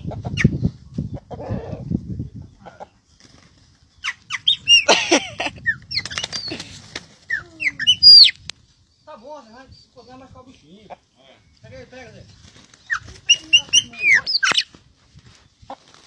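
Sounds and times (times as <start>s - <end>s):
birds chirping: 0.0s - 15.8s
wings flapping: 3.1s - 8.5s, 12.0s - 16.0s.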